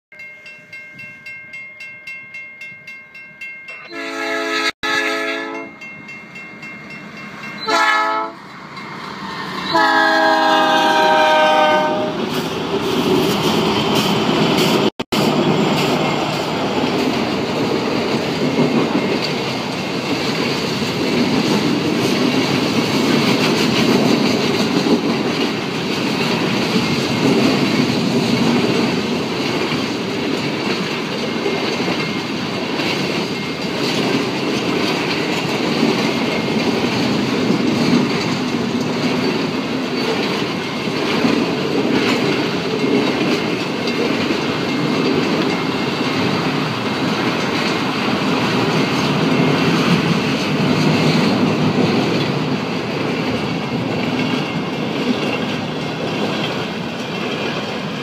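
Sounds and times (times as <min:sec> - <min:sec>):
level-crossing bell ringing: 0:00.1 - 0:04.2, 0:05.4 - 0:08.0
train horn blasts: 0:03.9 - 0:05.8, 0:07.6 - 0:08.4, 0:09.6 - 0:12.2
train wheels clicking over rail joints: 0:12.2 - 0:58.0.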